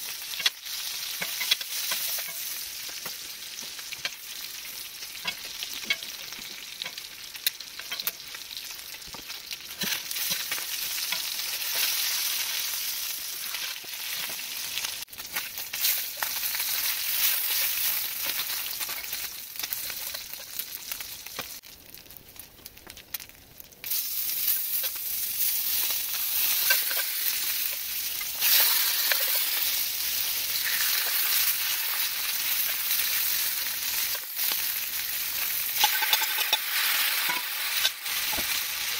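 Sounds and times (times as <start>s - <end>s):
seafood sizzling in hot oil: 0.0s - 38.9s
utensils scraping a skillet: 0.2s - 3.2s, 7.8s - 8.2s, 9.7s - 12.7s, 15.3s - 20.6s, 23.9s - 38.9s.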